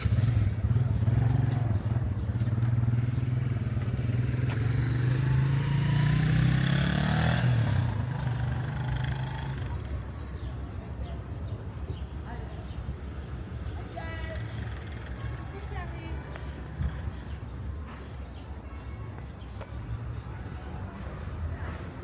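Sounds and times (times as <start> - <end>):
vehicle engine passing: 0.0 - 10.5.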